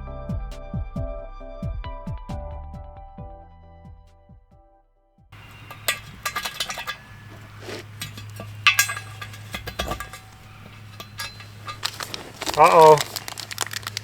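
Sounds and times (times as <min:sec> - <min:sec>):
metal hardware clinking: 0:05.4 - 0:14.0.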